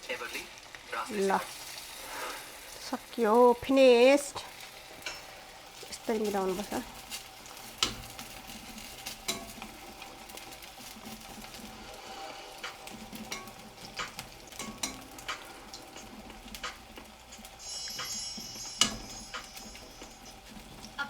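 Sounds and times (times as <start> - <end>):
fritters deep-frying in oil: 0.0 - 21.0
utensil knocking against pan: 12.6 - 21.0.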